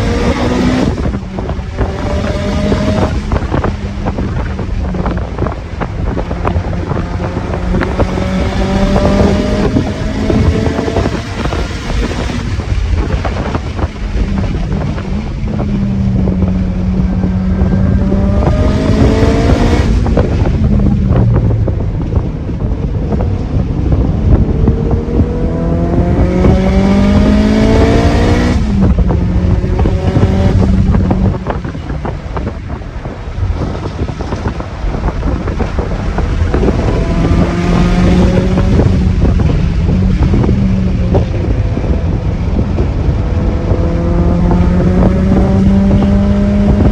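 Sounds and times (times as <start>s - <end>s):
car engine accelerating: 0.0s - 46.9s
wind and road noise: 0.0s - 46.9s.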